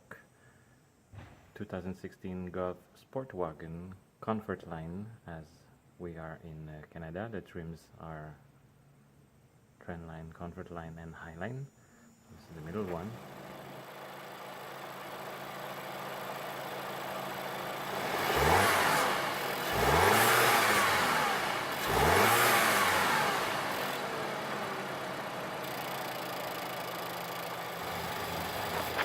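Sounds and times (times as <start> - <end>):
car engine idling and revving: 12.6 - 29.0.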